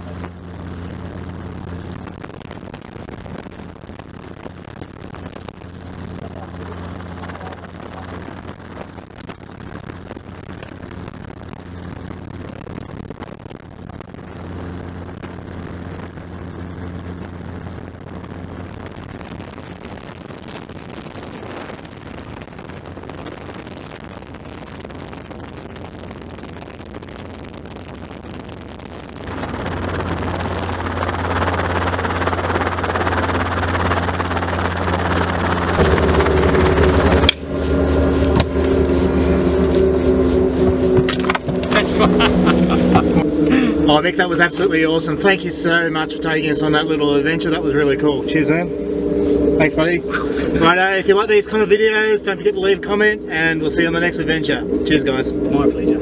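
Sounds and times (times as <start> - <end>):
helicopter engine and rotor: 0.0 - 2.1, 5.7 - 8.4, 29.3 - 51.5.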